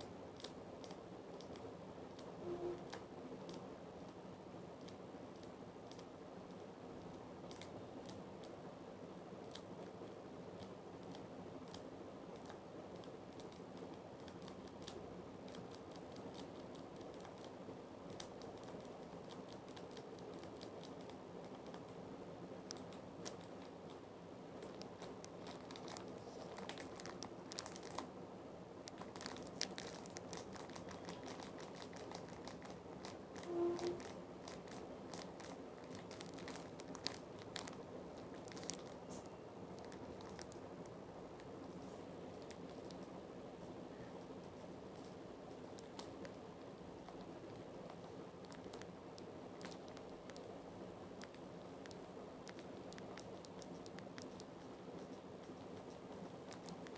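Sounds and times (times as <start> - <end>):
low background hum: 0.0 - 56.9
brief tone: 2.4 - 3.0, 33.5 - 34.1
clicks and crinkling: 24.6 - 28.1, 28.8 - 43.2, 44.9 - 50.6, 51.2 - 56.9.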